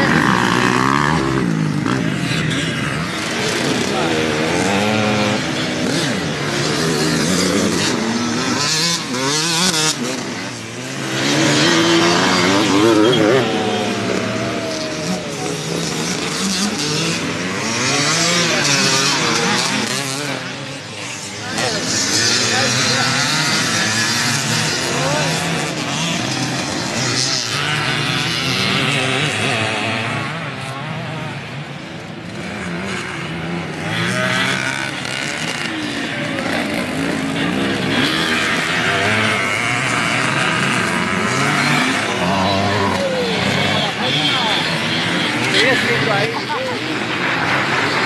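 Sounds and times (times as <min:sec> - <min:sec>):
racing motorcycle engines revving: 0:00.0 - 0:48.0.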